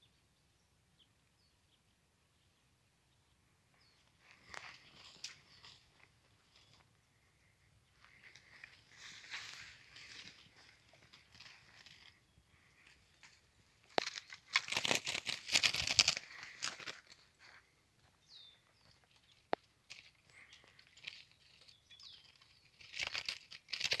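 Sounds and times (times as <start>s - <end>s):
bird wings flapping in cage: 14.0s - 17.0s, 22.8s - 24.0s
high bird chirp: 18.0s - 19.5s, 20.2s - 23.1s.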